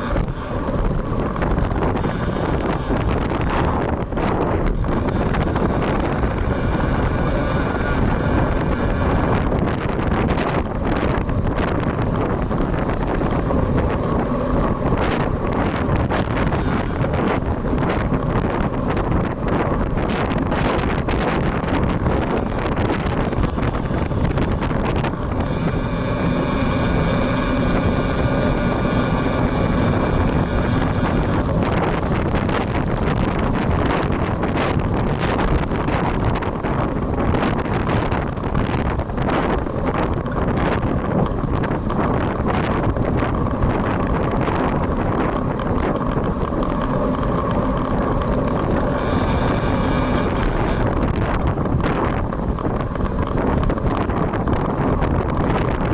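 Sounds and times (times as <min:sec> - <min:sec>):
faint high whine: 0:00.0 - 0:33.1, 0:40.2 - 0:51.4
steady droning hum: 0:00.0 - 0:55.9
wind buffeting microphone: 0:00.0 - 0:55.9.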